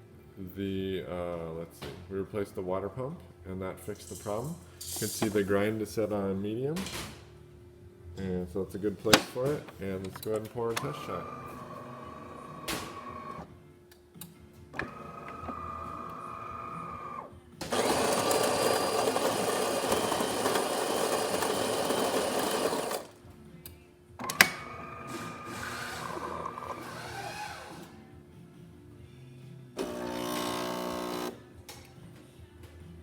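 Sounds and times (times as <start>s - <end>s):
grinder grinding coffee beans: 10.8s - 13.4s, 14.8s - 23.2s, 25.0s - 27.8s, 29.8s - 31.4s
motor whirring: 10.8s - 13.5s, 14.8s - 23.1s, 24.3s - 27.9s, 29.8s - 31.4s.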